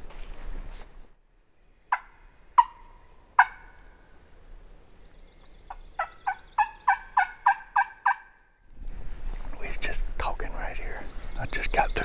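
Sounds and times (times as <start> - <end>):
rustling footsteps: 0.0 - 1.2
turkey yelping: 6.0 - 8.3.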